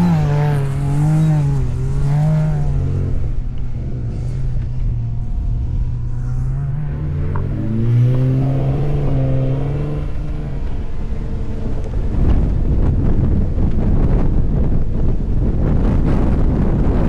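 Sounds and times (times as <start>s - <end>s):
engine revving: 0.0s - 12.3s
wind buffeting microphone: 0.0s - 17.0s.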